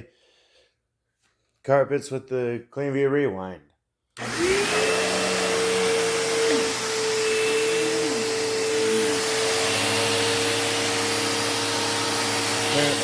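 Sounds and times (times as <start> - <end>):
vacuum cleaner running on carpet: 4.2 - 13.0.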